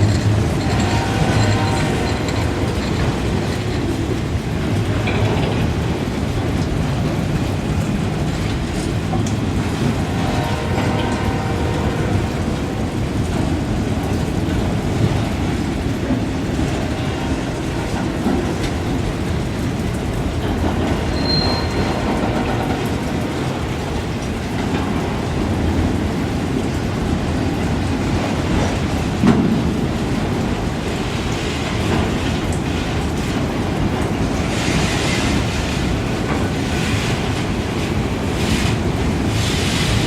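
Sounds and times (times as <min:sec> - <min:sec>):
train wheels rumbling on rail: 0:00.0 - 0:40.0
high squeal: 0:21.1 - 0:21.8.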